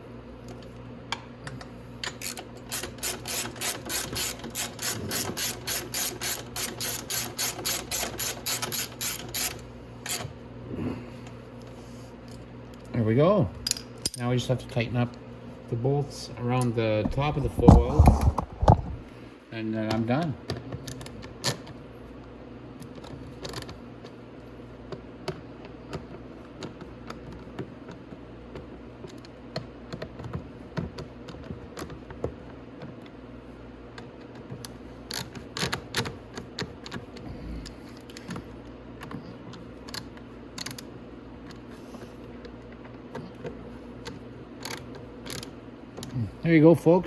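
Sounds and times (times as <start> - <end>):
steady low hum: 0.0 - 29.4, 30.4 - 47.0
ratchet wrench clicking: 2.1 - 10.3.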